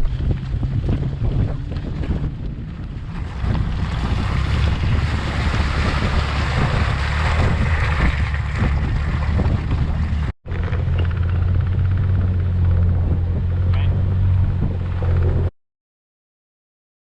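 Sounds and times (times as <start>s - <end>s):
low engine drone: 0.0s - 15.5s
tyres rushing through slush and mud: 0.2s - 15.5s.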